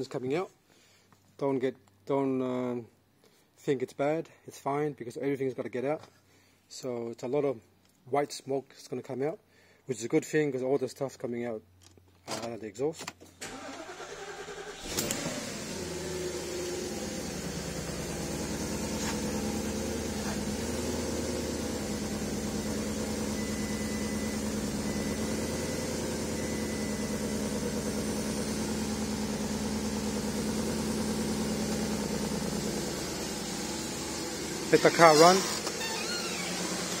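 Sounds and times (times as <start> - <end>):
starter cranking engine: 13.4 - 22.0, 34.2 - 37.0
car engine idling: 13.5 - 37.0.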